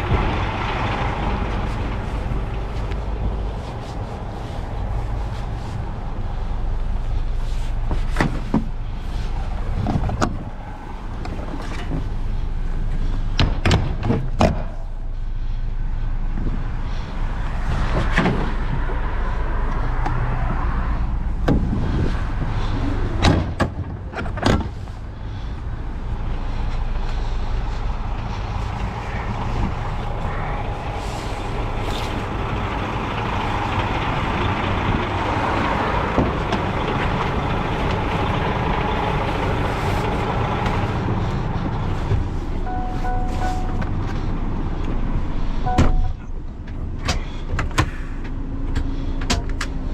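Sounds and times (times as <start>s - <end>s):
truck engine running: 0.0s - 49.9s
sharp knocks and clunks: 13.3s - 14.8s, 21.4s - 21.8s.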